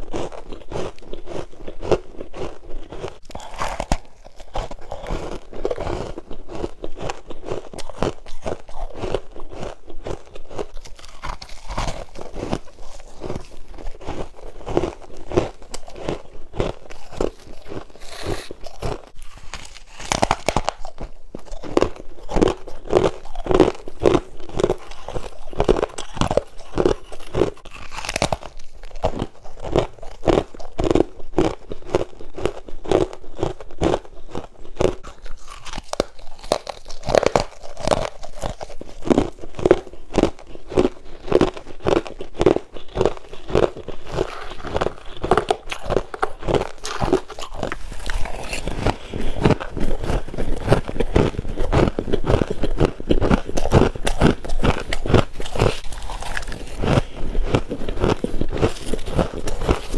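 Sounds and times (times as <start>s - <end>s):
chewing frost crunching: 0.0s - 59.9s.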